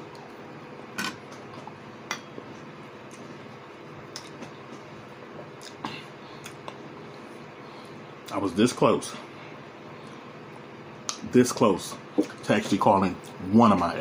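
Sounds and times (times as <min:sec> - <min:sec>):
steady low hum: 0:00.0 - 0:14.0
wet mouth clicks and smacks: 0:04.1 - 0:04.5
person chewing food: 0:04.1 - 0:04.8, 0:06.4 - 0:06.8.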